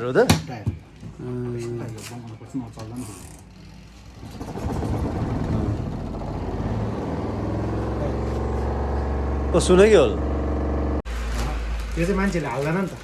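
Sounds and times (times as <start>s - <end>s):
spin dryer motor humming: 3.6s - 11.0s.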